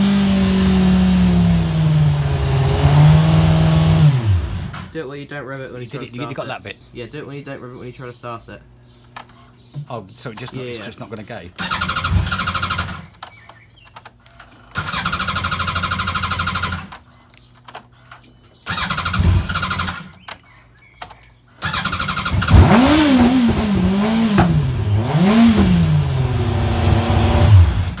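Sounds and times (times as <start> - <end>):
electric starter cranking: 0.0 - 5.0, 11.6 - 28.0
motorcycle engine revving: 0.0 - 5.0, 11.5 - 17.7, 18.6 - 20.3, 21.6 - 28.0.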